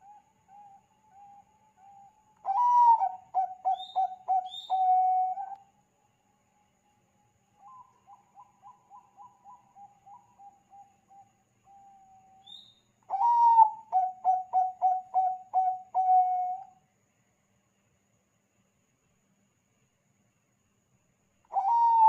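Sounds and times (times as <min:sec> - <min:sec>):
dove cooing: 0:00.0 - 0:05.5, 0:13.1 - 0:16.6, 0:21.5 - 0:22.0.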